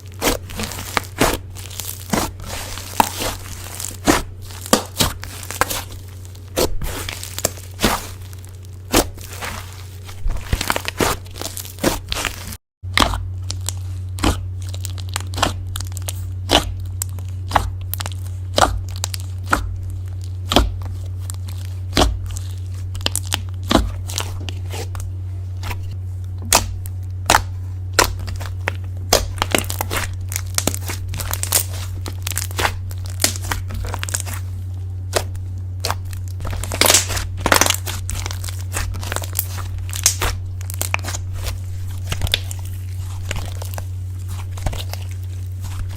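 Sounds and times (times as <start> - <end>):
low hum: 0.0 - 45.9
slime clicking and popping: 12.9 - 19.7, 26.4 - 34.4, 35.1 - 45.0.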